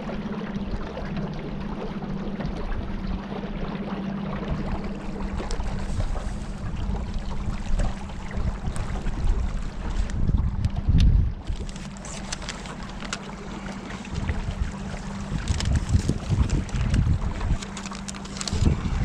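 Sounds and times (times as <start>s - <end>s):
water rushing: 0.0s - 10.8s, 11.4s - 19.0s
boat motor humming: 0.0s - 19.0s
wind: 0.0s - 19.0s.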